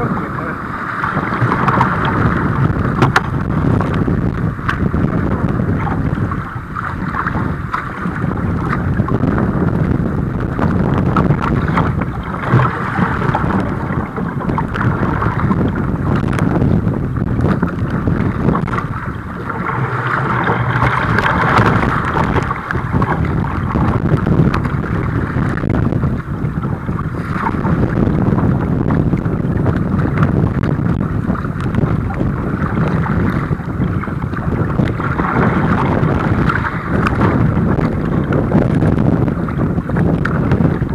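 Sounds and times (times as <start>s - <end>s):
water rushing and splashing: 0.0s - 40.9s
wind on microphone: 0.0s - 40.9s.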